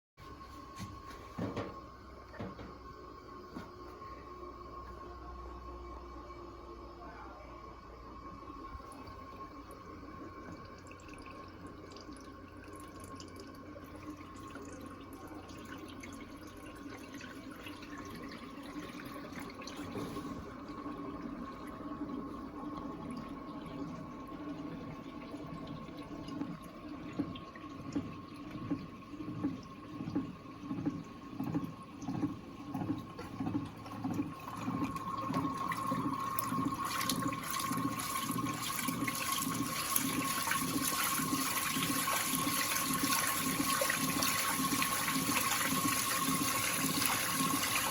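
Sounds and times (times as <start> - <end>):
washing machine filling with water: 0.2 - 47.9
rhythmic water splashing: 20.5 - 47.9.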